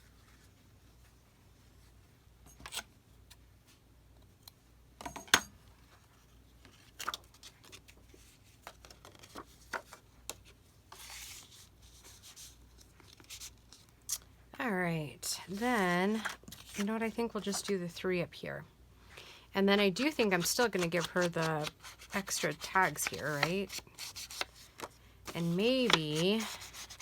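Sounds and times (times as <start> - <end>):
paper rustling: 20.2 - 27.0.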